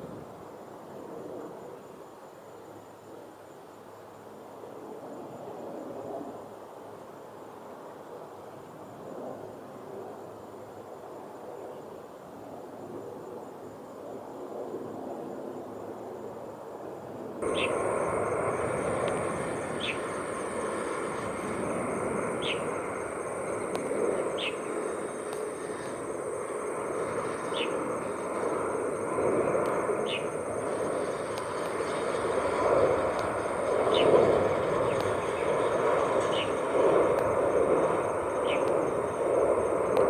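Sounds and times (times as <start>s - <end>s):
distant jet engines rumbling: 17.4s - 40.0s
high insect buzz: 17.4s - 40.0s.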